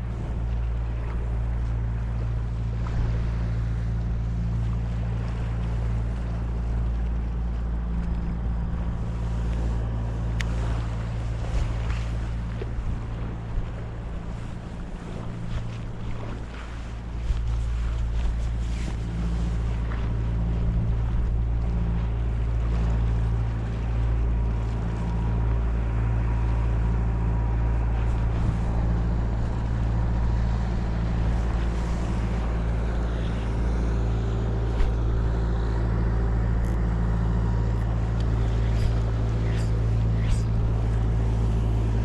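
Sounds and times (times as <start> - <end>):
low engine hum: 0.0 - 42.0.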